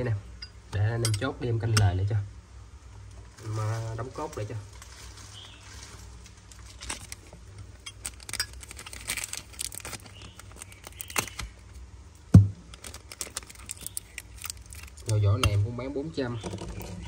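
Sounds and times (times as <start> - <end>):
heavy knock: 12.4 - 12.6.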